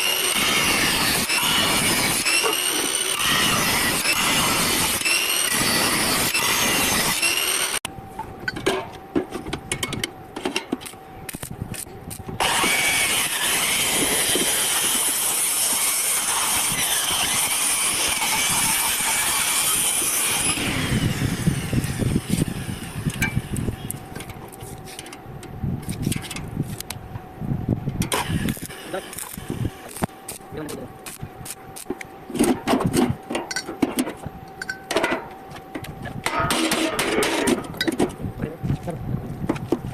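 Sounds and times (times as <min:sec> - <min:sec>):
harsh hissing metalworking noise: 0:00.0 - 0:07.8, 0:11.3 - 0:25.2, 0:28.1 - 0:32.1.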